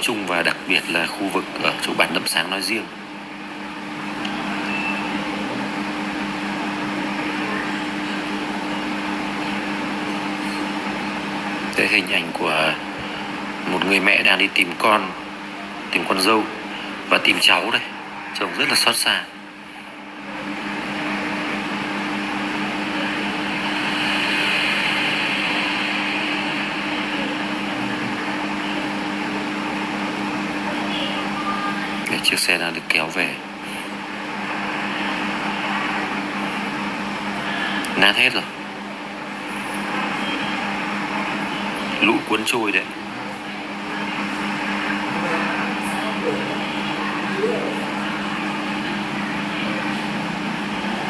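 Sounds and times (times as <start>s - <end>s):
motor humming: 19.6s - 32.1s
even hiss: 21.4s - 30.1s.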